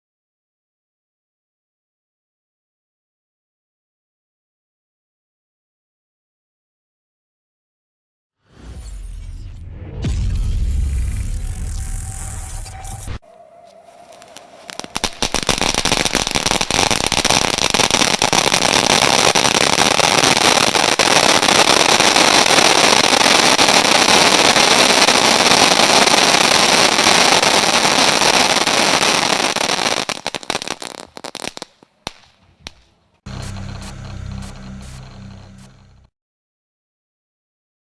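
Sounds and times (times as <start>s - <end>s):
crackling firework: 10.2s - 13.2s, 14.0s - 36.1s
background music: 33.3s - 36.1s.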